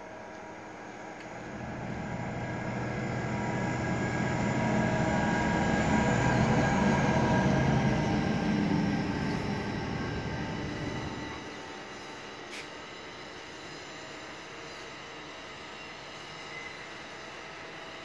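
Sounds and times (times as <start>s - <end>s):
diesel locomotive engine hum: 0.0s - 18.0s
train wheels rumbling on rail: 0.9s - 12.1s.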